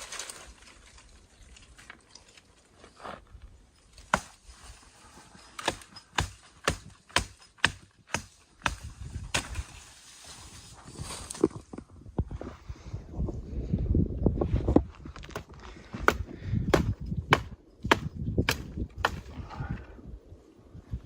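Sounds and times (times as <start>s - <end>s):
wood being struck: 5.6s - 9.5s, 16.0s - 19.2s.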